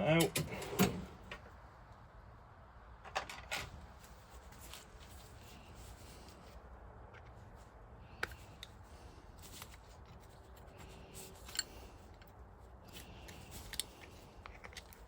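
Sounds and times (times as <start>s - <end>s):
metal pick scraping and clicking: 9.4s - 15.0s.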